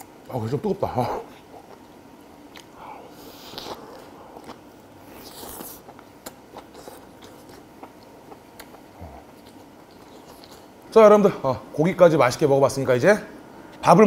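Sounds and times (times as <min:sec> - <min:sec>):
biting and chewing: 0:03.4 - 0:10.8.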